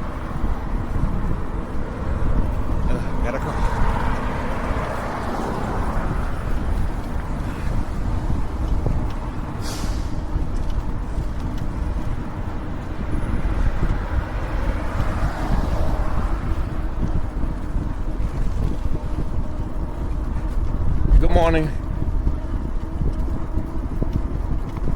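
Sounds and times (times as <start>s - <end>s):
road traffic: 0.0s - 24.9s
wind rumble on microphone: 0.0s - 24.9s.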